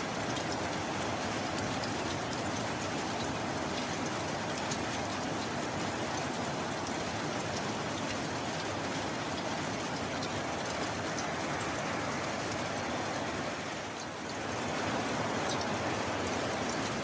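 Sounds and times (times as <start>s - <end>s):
raindrops ticking: 0.0s - 17.0s
steady rain: 0.0s - 17.0s.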